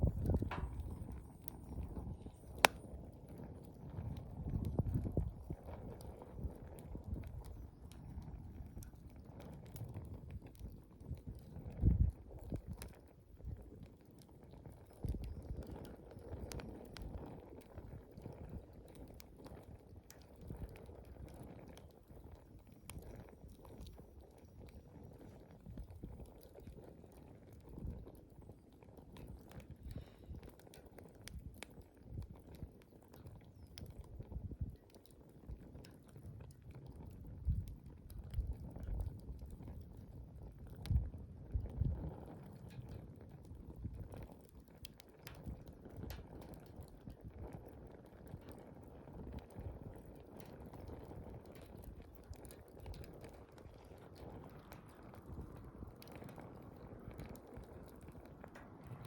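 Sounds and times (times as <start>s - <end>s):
campfire crackling: 0.0s - 59.0s
low fire rumble: 0.0s - 59.0s.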